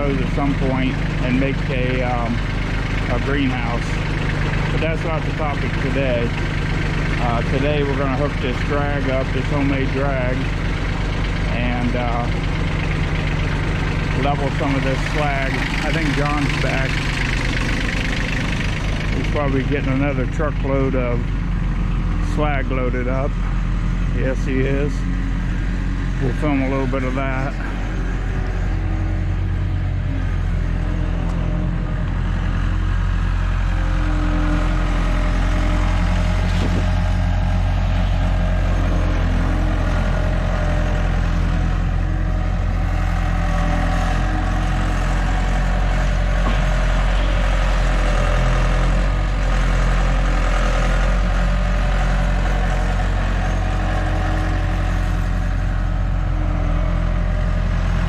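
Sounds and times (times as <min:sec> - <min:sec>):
large vehicle engine running: 0:00.0 - 0:58.0.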